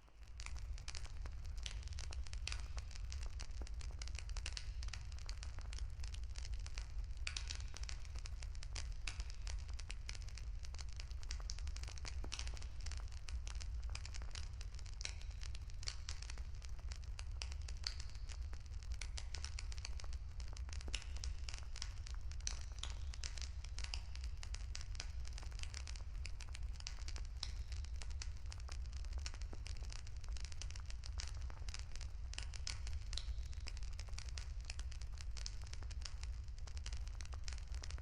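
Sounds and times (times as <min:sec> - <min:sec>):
campfire crackling and popping: 0:00.1 - 0:38.0.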